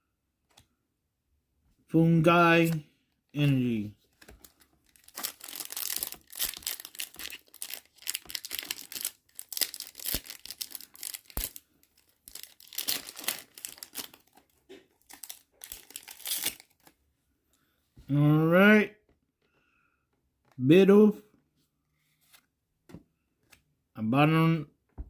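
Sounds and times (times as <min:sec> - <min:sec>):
foil wrapper crinkling and tearing: 0:04.3 - 0:16.9.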